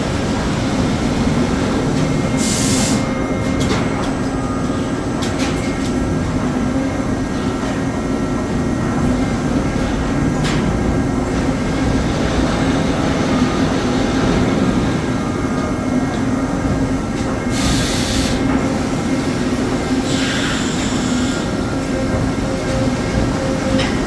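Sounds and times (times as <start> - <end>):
panel bender mechanical hum: 0.0 - 24.0.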